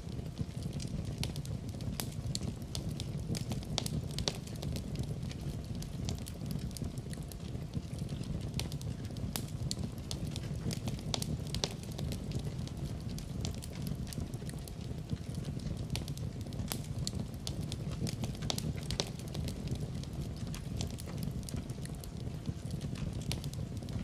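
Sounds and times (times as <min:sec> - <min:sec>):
fire crackling: 0:00.0 - 0:24.0.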